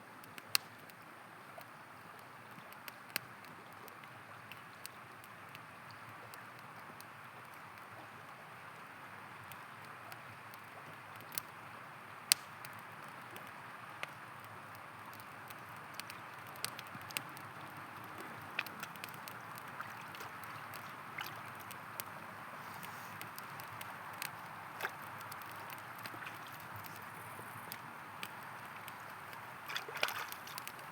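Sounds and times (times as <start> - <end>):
campfire crackling and popping: 0.2 - 30.9
river water rushing: 19.4 - 30.9.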